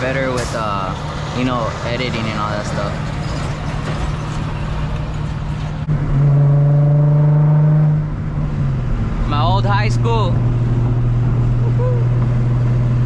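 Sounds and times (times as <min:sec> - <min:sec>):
car exhaust drone: 0:04.9 - 0:13.0.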